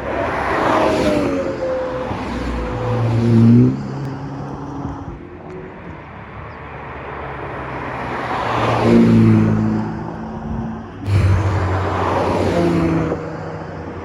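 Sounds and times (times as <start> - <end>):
car engine approaching: 0.2 - 5.2, 7.9 - 14.0
sports car accelerating past: 11.0 - 14.0.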